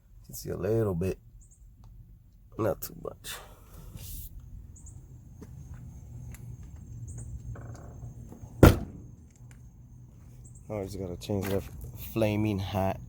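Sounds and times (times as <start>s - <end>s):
loud thump: 8.6s - 9.2s.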